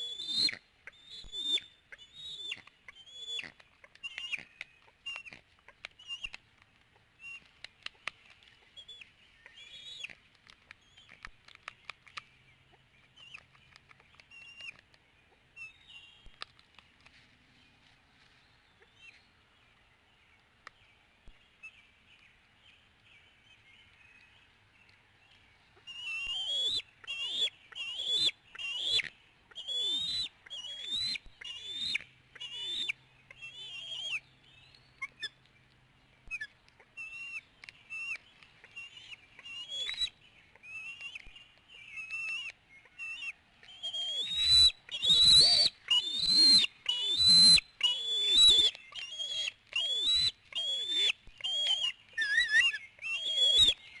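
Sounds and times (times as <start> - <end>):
eagles squealing calls: 42.0 - 53.8.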